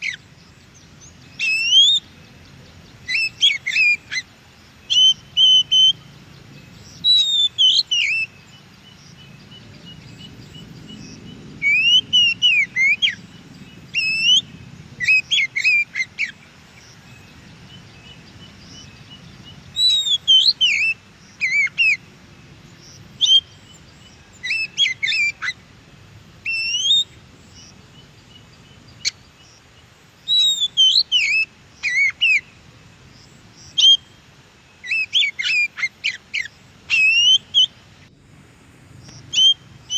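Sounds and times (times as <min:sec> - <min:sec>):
bird singing whistles and chirps: 0:01.3 - 0:02.2, 0:02.9 - 0:04.2, 0:04.9 - 0:06.0, 0:06.9 - 0:08.4, 0:09.2 - 0:16.4, 0:17.2 - 0:22.0, 0:23.2 - 0:25.6, 0:26.4 - 0:27.2, 0:30.2 - 0:32.5, 0:33.6 - 0:34.2, 0:34.8 - 0:37.8, 0:39.1 - 0:39.9.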